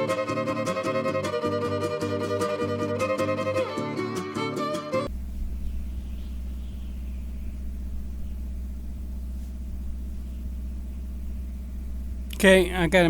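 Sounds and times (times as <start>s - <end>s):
steady low rumble: 5.1s - 13.0s.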